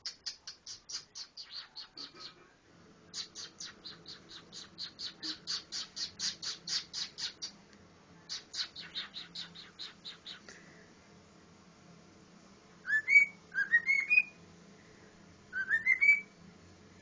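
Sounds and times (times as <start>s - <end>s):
cockatiel chirping: 0.0s - 2.4s, 3.1s - 7.6s, 8.3s - 10.5s, 12.9s - 14.4s, 15.6s - 16.3s.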